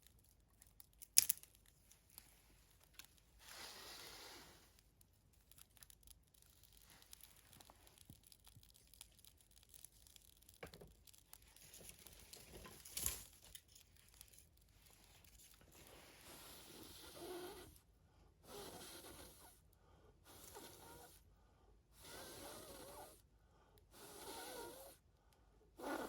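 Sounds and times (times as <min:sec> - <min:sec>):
wood fire crackling: 0:00.7 - 0:15.4
wood snapping: 0:01.0 - 0:01.5.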